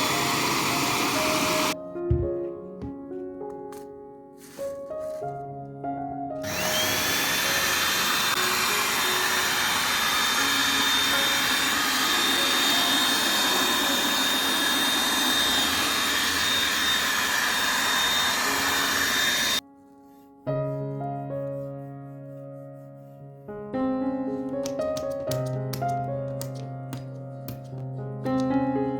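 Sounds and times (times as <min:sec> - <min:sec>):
hair dryer running: 0:00.0 - 0:01.8, 0:06.4 - 0:19.6.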